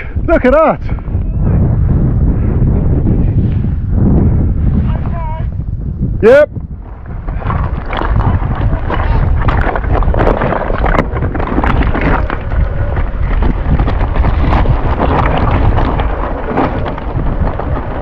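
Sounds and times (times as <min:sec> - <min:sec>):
wind buffeting microphone: 0:00.0 - 0:18.0
bike knocks and rattles: 0:06.8 - 0:18.0.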